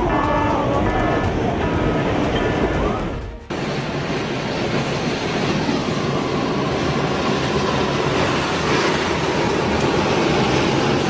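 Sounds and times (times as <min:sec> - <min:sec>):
water surging roar: 0:00.0 - 0:11.0.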